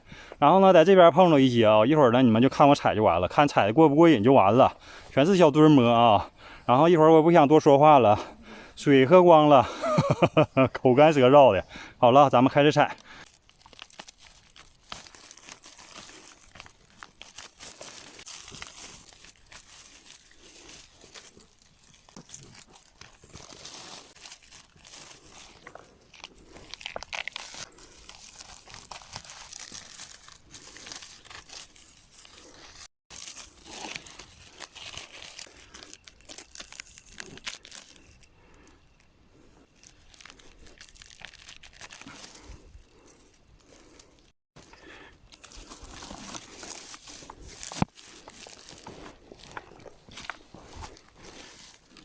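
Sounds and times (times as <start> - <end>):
dry leaves and twigs crunching: 12.2 - 52.0.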